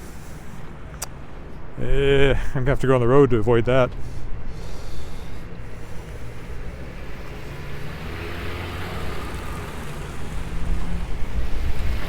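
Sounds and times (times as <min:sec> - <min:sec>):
vehicle tyres hissing on wet road: 0:04.0 - 0:12.0.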